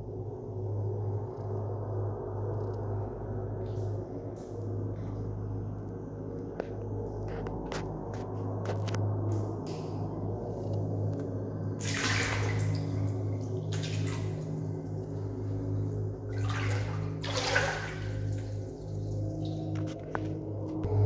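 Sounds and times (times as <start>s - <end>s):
steady low hum: 0.0s - 21.0s
water sloshing in a tank: 7.3s - 20.9s.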